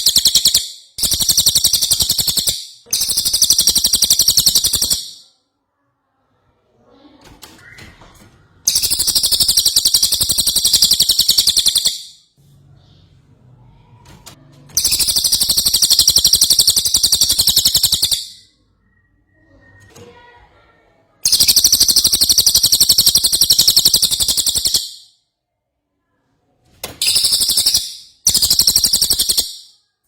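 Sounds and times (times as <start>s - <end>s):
bird trilling: 0.0s - 5.2s, 8.7s - 12.2s, 14.8s - 18.5s, 21.3s - 25.0s, 27.0s - 29.7s.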